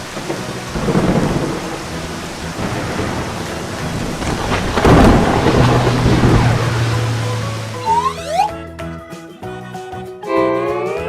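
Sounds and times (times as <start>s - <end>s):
thunder rumbling: 0.0s - 8.5s
cartoon rain: 0.0s - 8.6s.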